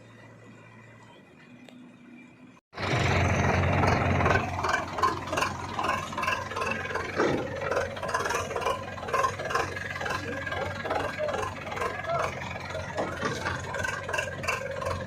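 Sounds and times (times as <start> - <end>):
diesel engine running: 0.0 - 15.0
clattering and rattling: 3.7 - 15.0.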